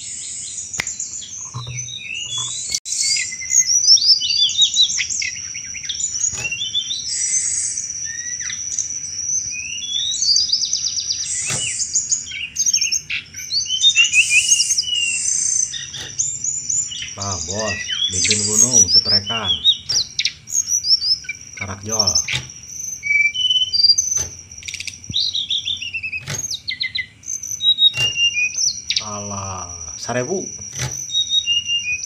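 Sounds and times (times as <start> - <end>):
bird chirping rapidly: 0.0 - 32.0
sharp clicks: 19.8 - 20.3, 21.6 - 22.6.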